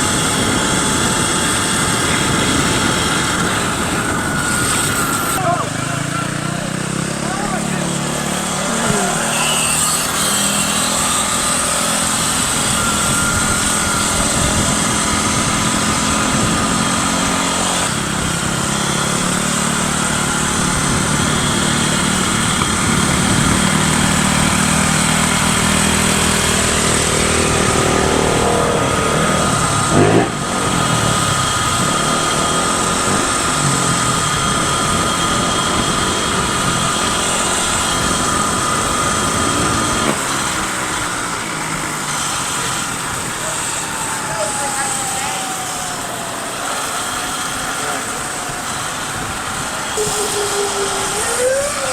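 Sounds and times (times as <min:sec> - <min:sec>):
wind noise: 0:00.0 - 0:05.4, 0:09.9 - 0:43.4
electric bike motor whine: 0:00.0 - 0:51.9
electric bike revving: 0:00.0 - 0:51.9
road noise: 0:00.0 - 0:51.9.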